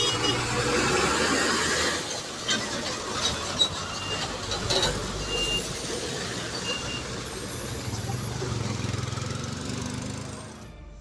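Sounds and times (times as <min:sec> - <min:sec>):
heavy truck engine rumble: 0:00.0 - 0:11.0
high reversing beeps: 0:05.1 - 0:08.0.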